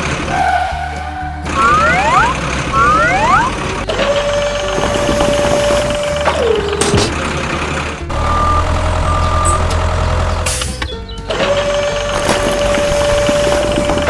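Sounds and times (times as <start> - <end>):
low engine sound: 0.0 - 14.0
short beeps: 8.1 - 10.2
motor whine: 8.1 - 11.1.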